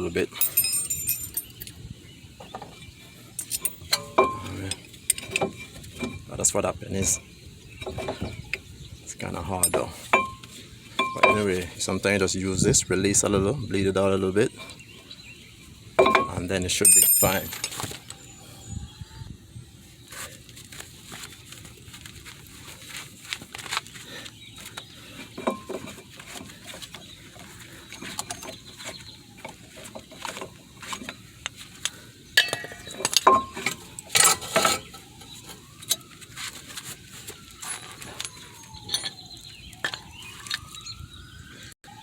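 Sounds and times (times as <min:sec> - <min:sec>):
hand tools clinking on metal: 0:00.4 - 0:01.8, 0:03.4 - 0:06.3, 0:09.6 - 0:11.6, 0:16.0 - 0:18.0, 0:25.2 - 0:28.8, 0:31.8 - 0:34.9, 0:37.6 - 0:39.2.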